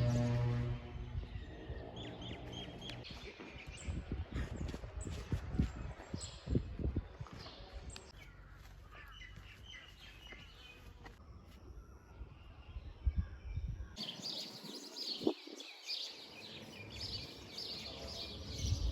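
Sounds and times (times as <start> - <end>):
small birds chirping: 6.0 - 18.9.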